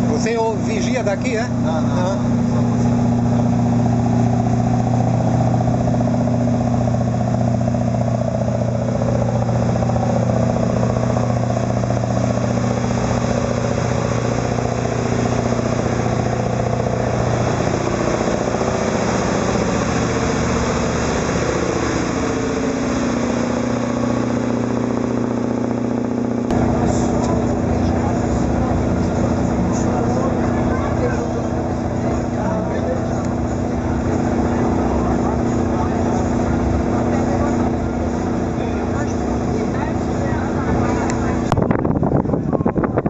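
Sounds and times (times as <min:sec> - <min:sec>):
boat diesel engine droning: 0:00.0 - 0:43.0.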